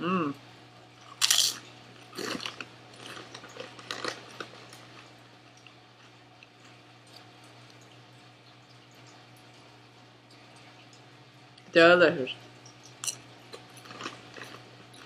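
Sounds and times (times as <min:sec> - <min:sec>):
crunchy chewing of chip: 0:01.0 - 0:07.3, 0:12.9 - 0:15.0.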